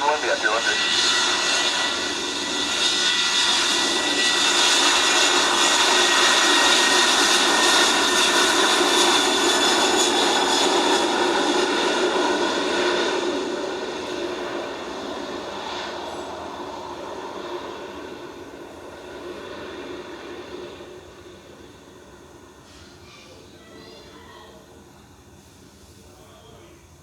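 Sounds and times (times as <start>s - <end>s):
jet airliner passing: 0.0s - 24.0s.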